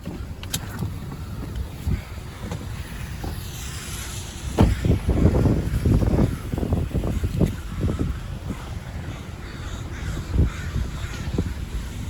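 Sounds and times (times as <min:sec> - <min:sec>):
wind buffeting microphone: 0:00.0 - 0:12.0
loud bumps and thumps: 0:04.5 - 0:06.3.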